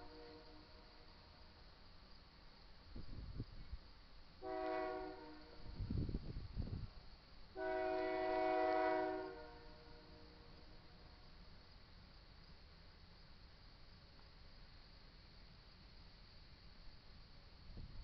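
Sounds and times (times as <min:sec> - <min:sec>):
locomotive air horn blasts: 0:00.0 - 0:01.0, 0:04.4 - 0:05.8, 0:07.6 - 0:10.8.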